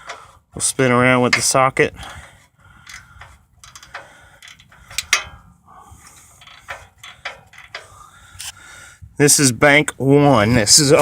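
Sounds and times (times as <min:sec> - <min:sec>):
ratchet wrench clicking: 0:02.8 - 0:05.4, 0:06.4 - 0:08.6.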